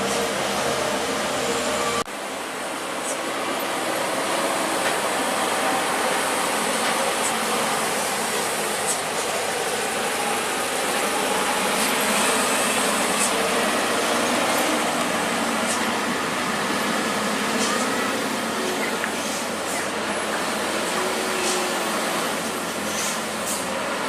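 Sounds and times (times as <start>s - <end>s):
heavy truck engine running: 0.0s - 24.0s
road noise: 0.0s - 24.0s.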